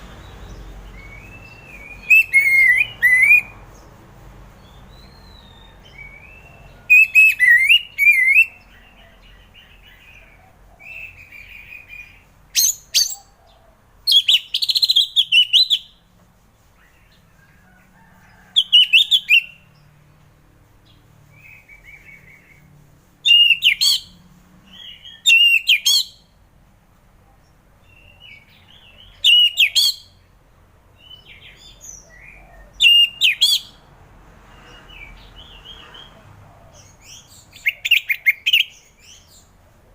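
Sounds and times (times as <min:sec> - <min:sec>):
thrush singing: 0:00.0 - 0:03.7.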